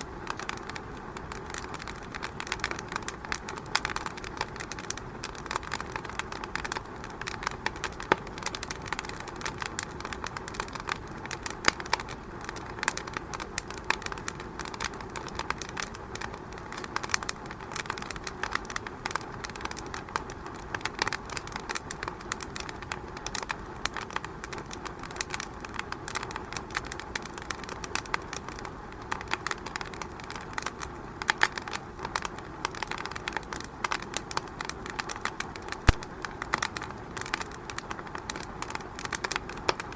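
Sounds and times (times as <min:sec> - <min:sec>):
fire crackling and popping: 0:00.0 - 0:39.9
steady low hiss: 0:00.0 - 0:39.9.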